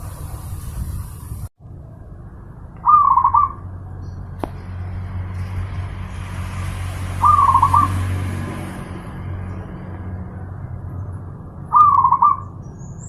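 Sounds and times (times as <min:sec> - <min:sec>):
dove cooing: 0:02.8 - 0:03.6, 0:11.7 - 0:12.4.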